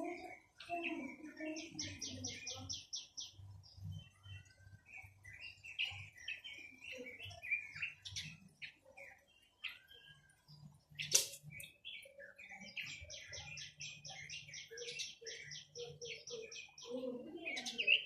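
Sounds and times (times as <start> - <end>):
songbird singing: 0.0 - 18.0.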